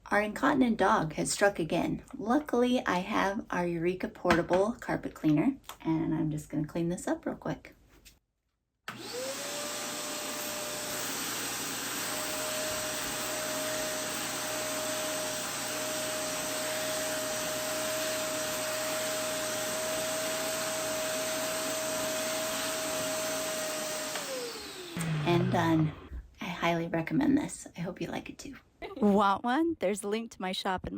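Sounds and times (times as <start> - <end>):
carpet cleaner motor whine: 8.9 - 26.1.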